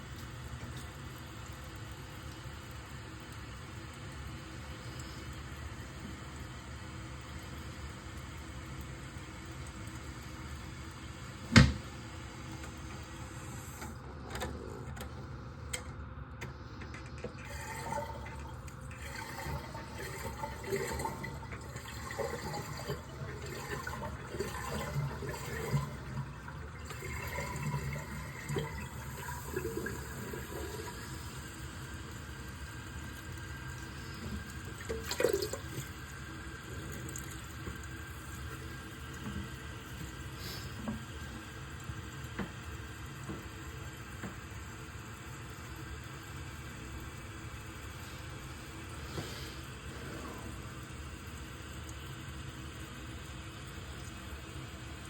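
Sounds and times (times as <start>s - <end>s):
water hissing into cistern: 0.0s - 14.0s, 17.3s - 44.0s, 47.2s - 55.0s
water gurgling: 17.4s - 40.6s.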